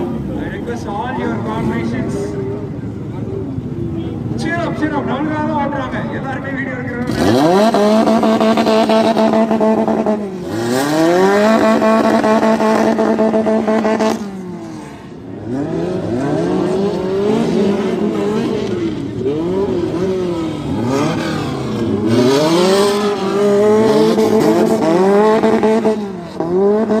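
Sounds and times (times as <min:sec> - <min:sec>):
car engine revving: 0:06.7 - 0:27.0.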